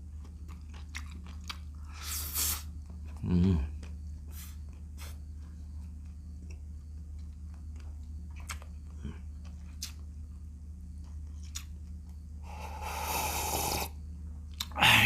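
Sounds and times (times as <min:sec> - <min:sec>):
person chewing: 0:00.0 - 0:05.3, 0:07.2 - 0:10.0, 0:11.0 - 0:13.9, 0:14.5 - 0:14.8.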